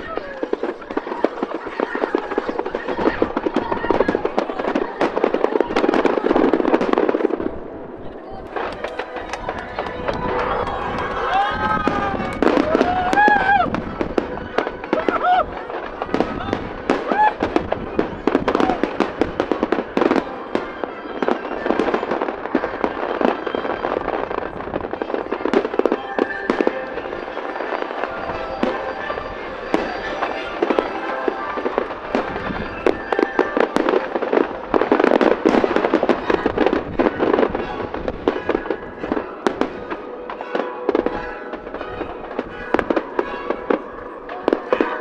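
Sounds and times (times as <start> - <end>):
fireworks bangs and crackles: 0.0 - 45.0
music playing: 7.0 - 15.1, 25.8 - 36.4.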